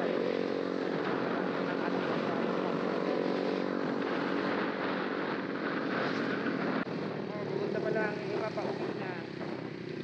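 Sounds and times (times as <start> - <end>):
wind noise on microphone: 0.0 - 7.3
motorcycle engine running: 0.0 - 10.0.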